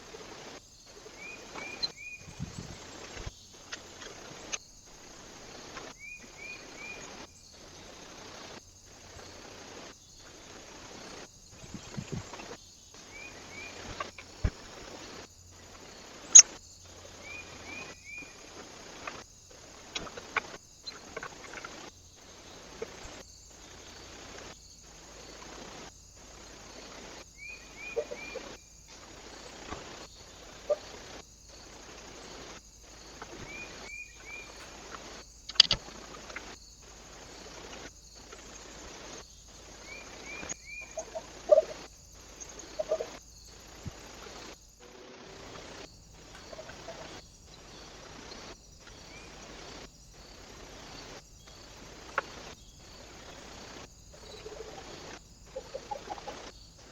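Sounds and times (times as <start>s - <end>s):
steady hiss: 0.0s - 56.9s
small bird calling: 0.9s - 4.7s, 27.4s - 28.7s, 29.6s - 31.2s, 33.2s - 36.6s, 38.2s - 43.2s, 45.5s - 49.8s, 50.4s - 56.9s.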